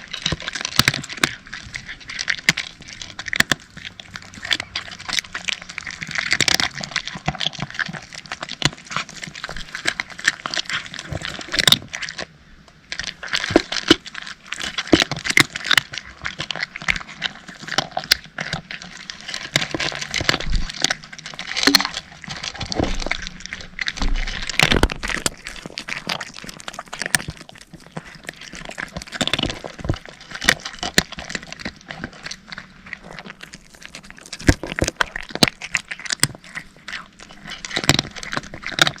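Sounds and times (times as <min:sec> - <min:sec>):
cats crunching dry kibble: 0:00.0 - 0:39.0.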